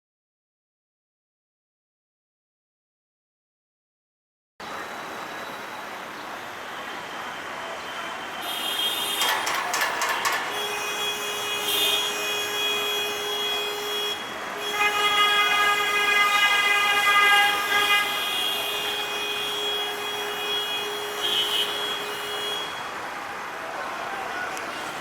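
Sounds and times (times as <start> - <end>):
road traffic: 4.6 - 25.0
vehicle horns: 7.8 - 23.1.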